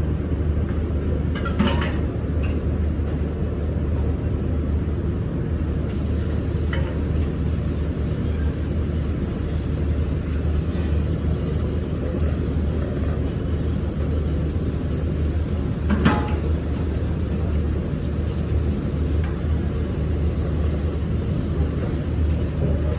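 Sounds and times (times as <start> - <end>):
low rumbling background noise: 0.0 - 22.9.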